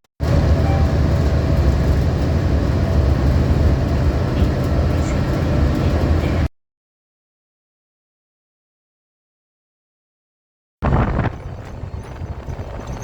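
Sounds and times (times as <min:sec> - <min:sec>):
vehicle rumble from inside cabin: 0:00.2 - 0:06.5, 0:10.8 - 0:13.0.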